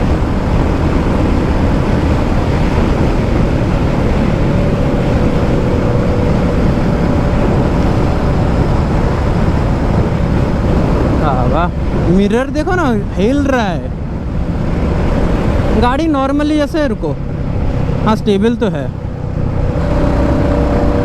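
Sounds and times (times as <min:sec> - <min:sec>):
motorcycle engine running fast: 0:00.0 - 0:12.1
wind rush over microphone: 0:00.0 - 0:21.0.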